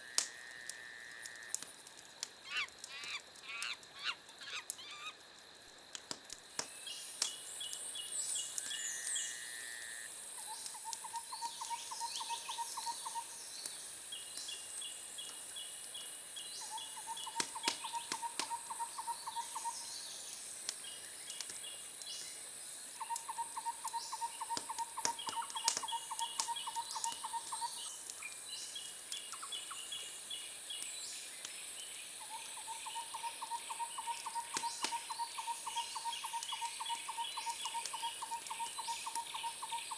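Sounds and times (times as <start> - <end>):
steady high-pitched hiss: 0.0 - 39.9.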